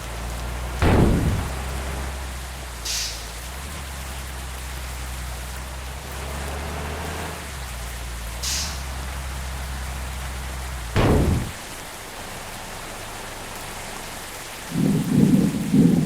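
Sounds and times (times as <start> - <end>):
rain hiss: 0.0 - 16.0
rumble of thunder: 0.8 - 2.3, 11.0 - 11.9
thunder crack: 0.8 - 2.3, 11.0 - 12.0
low hum: 0.8 - 2.4, 11.0 - 12.0.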